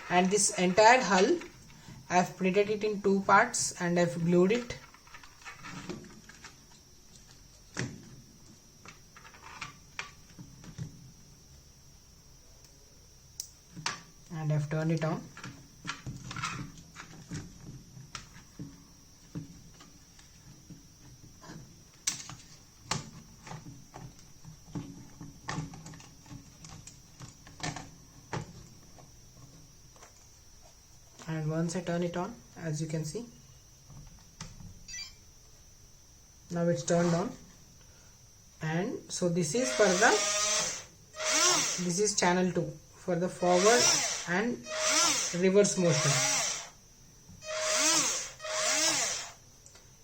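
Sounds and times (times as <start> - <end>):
faint high whine: 27.8 - 50.0.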